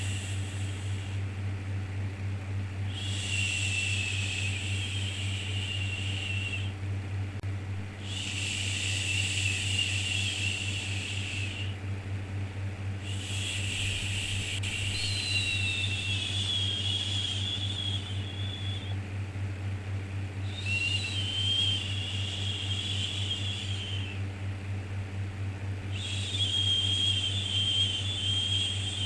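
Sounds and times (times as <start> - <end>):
low hum: 0.0 - 29.0.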